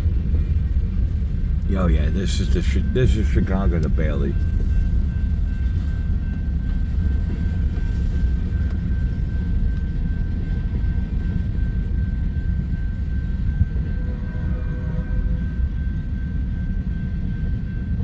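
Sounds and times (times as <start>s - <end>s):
freight train rolling by: 0.0s - 18.0s.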